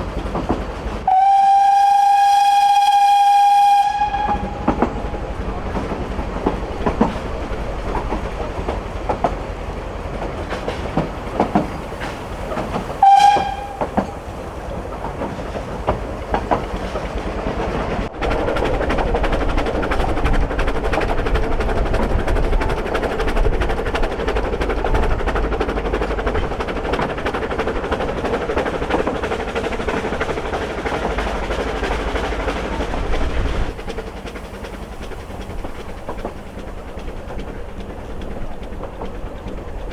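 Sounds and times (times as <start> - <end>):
steam train rumbling: 0.0 - 39.9
wheels clicking over rail joints: 0.0 - 39.9
steam whistle blast: 1.1 - 4.6, 13.0 - 13.9.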